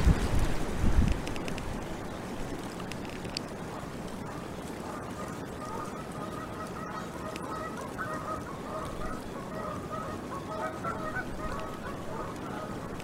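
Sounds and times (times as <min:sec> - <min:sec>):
wind noise on microphone: 0:00.0 - 0:05.5, 0:10.6 - 0:13.0
distant geese honking: 0:03.4 - 0:13.0.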